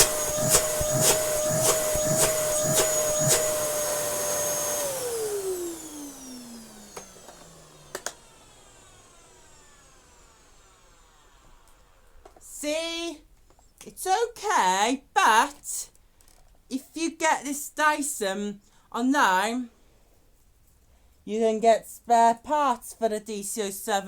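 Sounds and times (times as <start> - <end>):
vacuum cleaner motor whining: 0.0 - 12.4.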